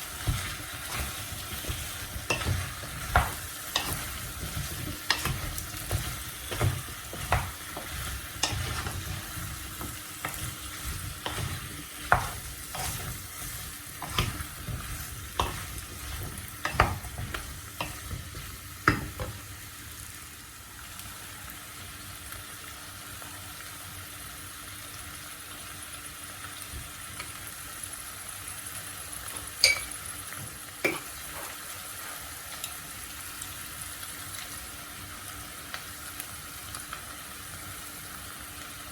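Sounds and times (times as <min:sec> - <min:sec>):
food sizzling in frying pan: 0:00.0 - 0:38.9
utensil scraping pan: 0:00.2 - 0:19.4.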